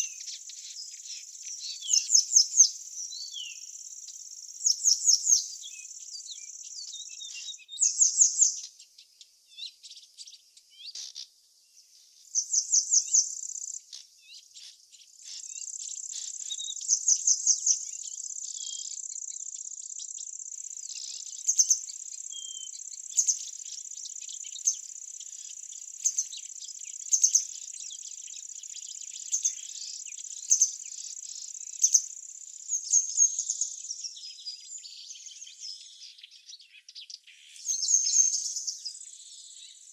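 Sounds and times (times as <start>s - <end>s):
insect trill: 0.0s - 8.7s, 12.4s - 14.0s, 14.6s - 35.6s
birds chirping: 0.0s - 39.9s.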